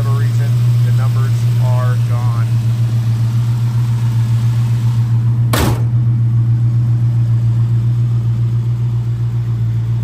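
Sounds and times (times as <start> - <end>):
car engine idling: 0.0 - 10.0
car hood shutting thump: 5.5 - 6.1.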